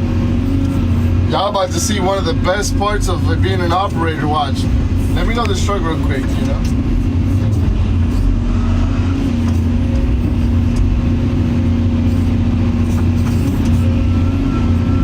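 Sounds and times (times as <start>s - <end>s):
excavator diesel engine running: 0.0s - 15.0s
faint high whine: 12.9s - 15.0s.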